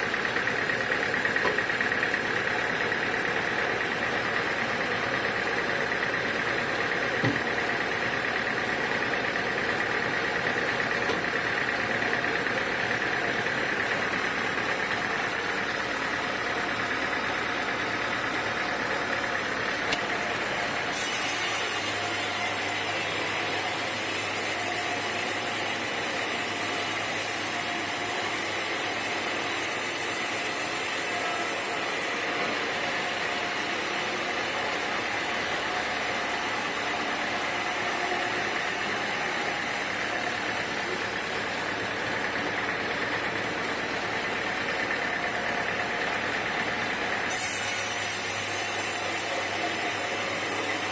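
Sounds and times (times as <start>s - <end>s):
sawmill machinery running: 0.0s - 50.9s.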